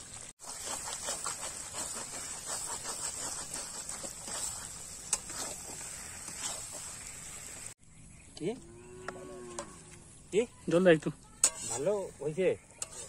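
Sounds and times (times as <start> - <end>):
curry sizzling in a metal pan: 0.0 - 7.8, 9.6 - 13.0
spatula scraping a pan: 0.4 - 7.8, 11.4 - 13.0.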